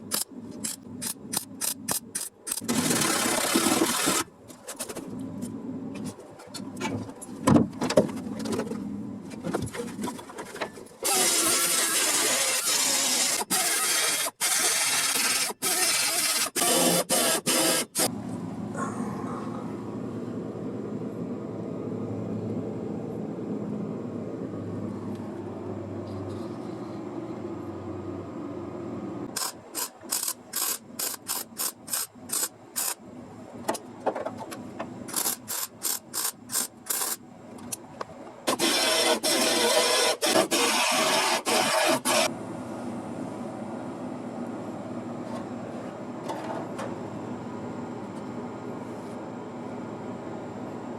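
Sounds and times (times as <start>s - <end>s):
quiet steady hum: 18.0s - 38.5s.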